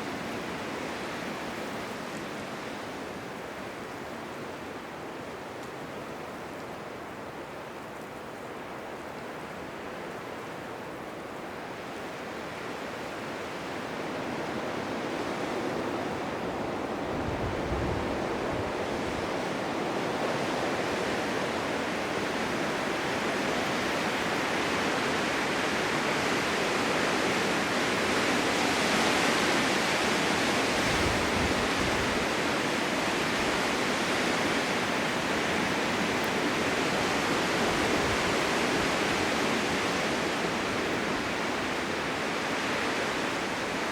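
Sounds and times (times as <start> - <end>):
blizzard wind rushing: 12.5 - 43.9.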